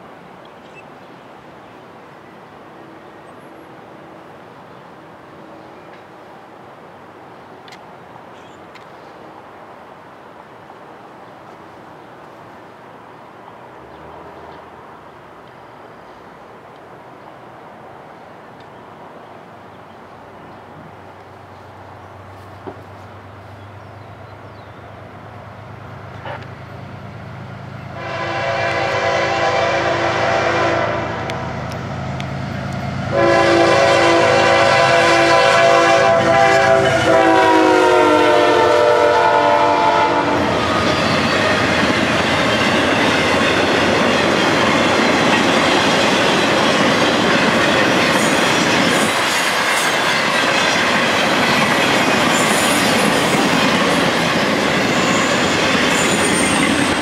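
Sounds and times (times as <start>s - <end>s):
freight train clickety-clack: 27.7s - 57.0s
locomotive horn blasts: 28.0s - 31.6s, 33.1s - 40.6s
high wheel squeals: 52.1s - 57.0s.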